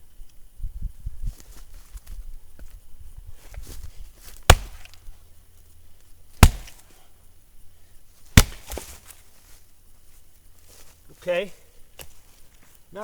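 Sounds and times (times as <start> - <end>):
axe chopping wood: 4.5 - 5.0, 6.4 - 6.8, 8.3 - 9.0.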